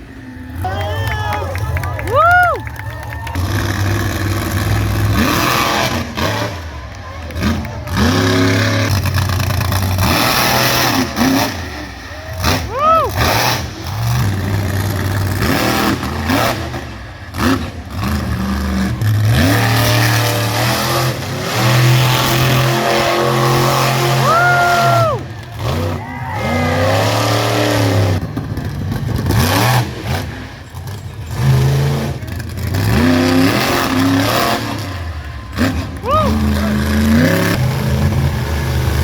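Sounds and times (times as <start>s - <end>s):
monster truck engine revving: 0.0s - 39.0s.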